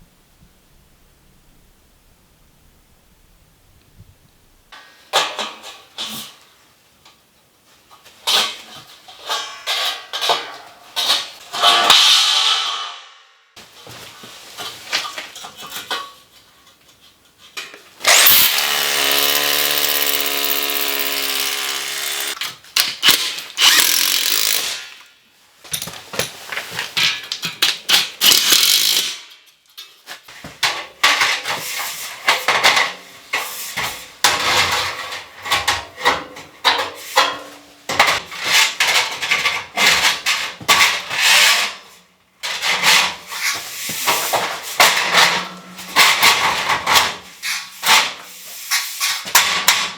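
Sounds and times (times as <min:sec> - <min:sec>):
power tool running: 0:18.0 - 0:22.4, 0:23.0 - 0:24.8, 0:28.3 - 0:29.0.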